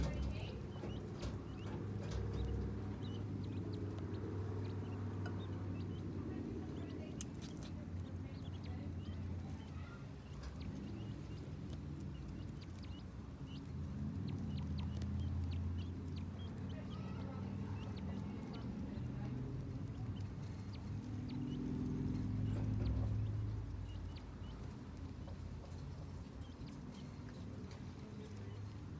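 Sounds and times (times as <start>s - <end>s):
chicks peeping: 0.0s - 28.9s
steady low hum: 0.0s - 28.9s.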